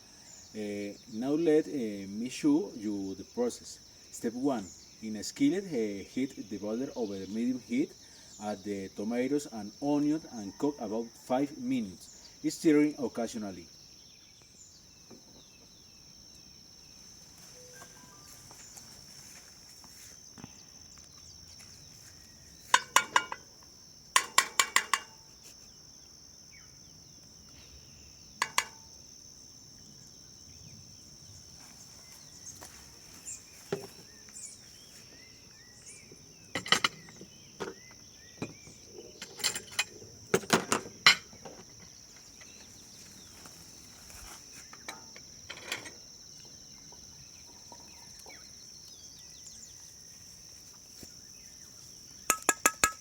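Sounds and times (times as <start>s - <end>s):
insect trill: 0.0s - 53.0s
utensils clinking on cookware: 22.7s - 23.5s, 24.2s - 25.2s, 28.4s - 28.8s, 39.2s - 41.4s.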